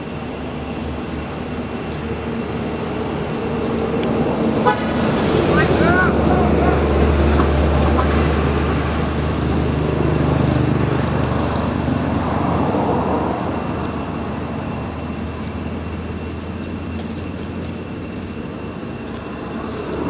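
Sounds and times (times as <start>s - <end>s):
heavy engine rumble: 0.0s - 20.0s
road noise: 0.0s - 20.0s.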